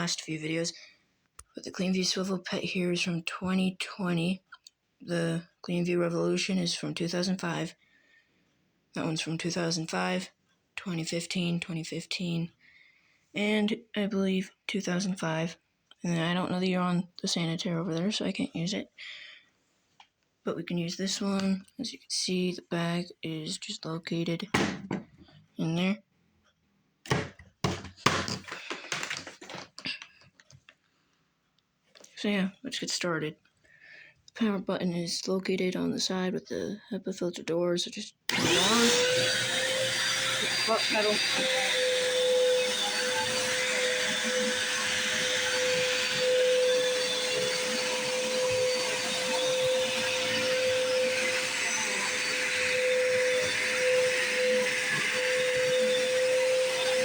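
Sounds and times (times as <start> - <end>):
vacuum cleaner running: 27.1 - 29.3, 38.3 - 57.0
plastic clicks and knocks: 27.1 - 30.8.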